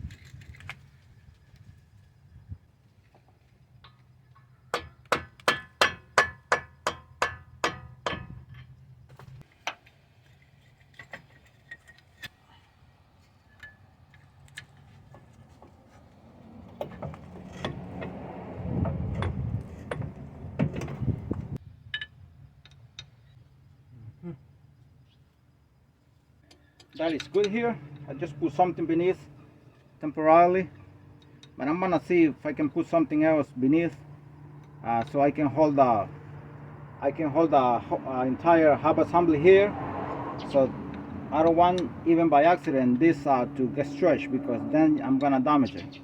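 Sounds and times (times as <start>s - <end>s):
hammer striking metal tool: 4.7s - 8.4s
metal parts scraping and knocking: 8.0s - 12.4s, 16.7s - 18.2s
tools clinking: 13.4s - 15.3s.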